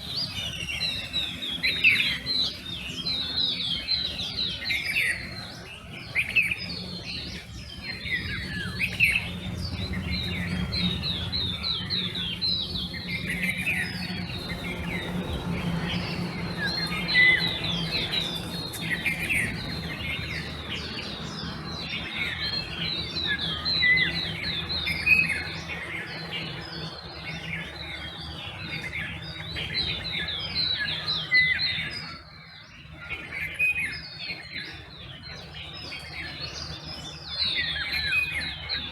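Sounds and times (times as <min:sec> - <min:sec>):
low steady hum: 0:00.0 - 0:30.5
birds chirping and trilling: 0:00.0 - 0:38.9.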